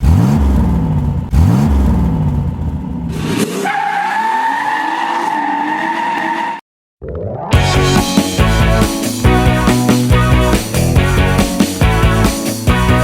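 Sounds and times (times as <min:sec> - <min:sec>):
car engine revving: 0:00.0 - 0:04.2
tyres screeching: 0:03.2 - 0:06.6.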